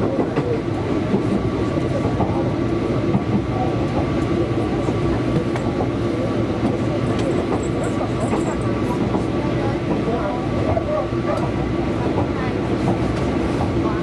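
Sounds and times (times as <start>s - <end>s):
train running rumble: 0.0s - 14.0s.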